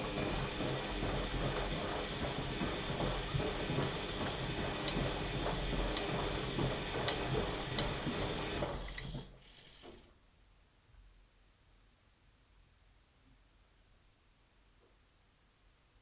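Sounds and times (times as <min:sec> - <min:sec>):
washing machine motor hum: 0:00.0 - 0:10.0.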